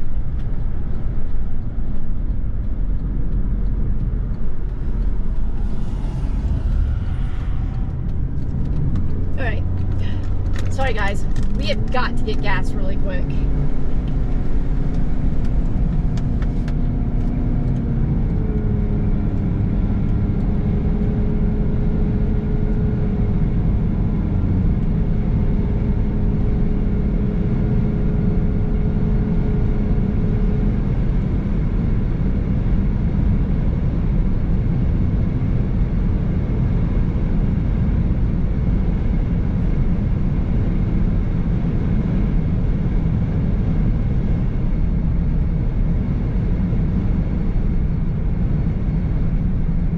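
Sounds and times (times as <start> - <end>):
car engine and road rumble: 0.0 - 49.9.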